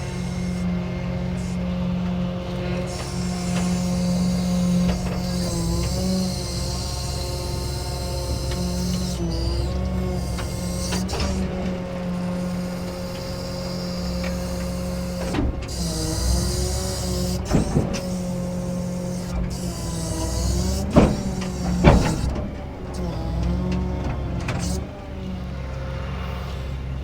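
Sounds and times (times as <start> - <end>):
hydraulic bed whining: 0.0 - 27.0
tow truck engine running: 0.0 - 27.0
sharp metal clunks: 12.9 - 22.9.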